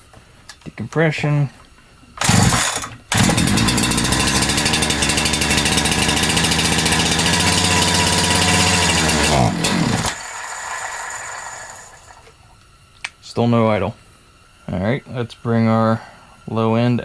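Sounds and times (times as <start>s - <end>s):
chainsaw engine running fast: 2.2s - 12.2s.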